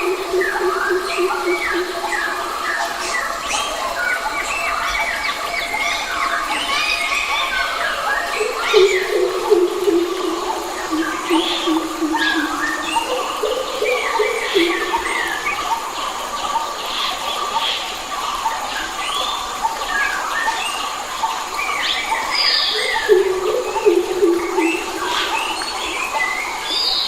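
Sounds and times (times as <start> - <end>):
low drawn-out bird calls: 0.0 - 2.6, 8.4 - 15.9
forest birds singing and calling: 0.0 - 27.0.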